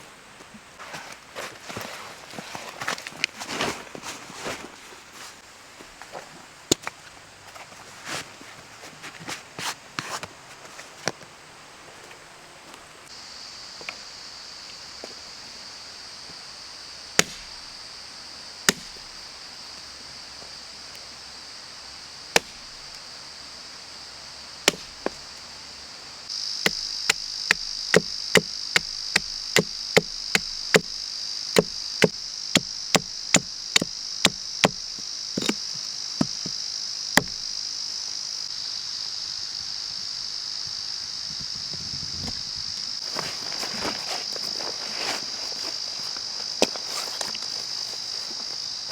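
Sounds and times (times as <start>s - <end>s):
crickets droning: 0.0s - 48.9s
wood being chopped: 17.2s - 17.7s, 18.7s - 19.2s, 22.4s - 22.8s, 24.7s - 25.2s, 26.6s - 31.0s, 31.6s - 36.6s, 37.2s - 37.5s.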